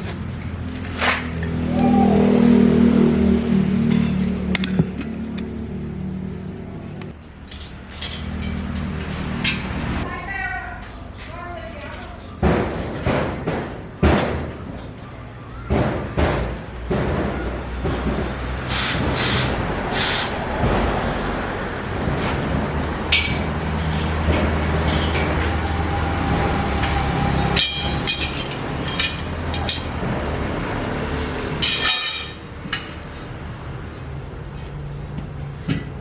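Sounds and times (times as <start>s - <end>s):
hissing and clatter: 17.9s - 30.2s.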